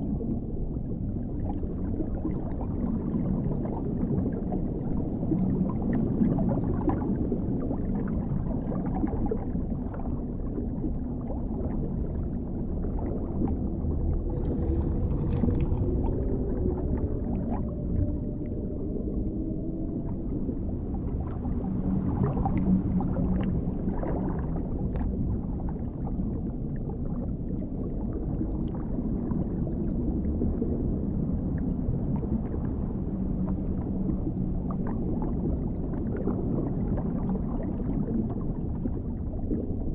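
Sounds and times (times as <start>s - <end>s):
deep muffled underwater rumble: 0.0s - 39.9s
bubbling: 1.0s - 32.5s
wavering gliding tone: 11.7s - 26.0s.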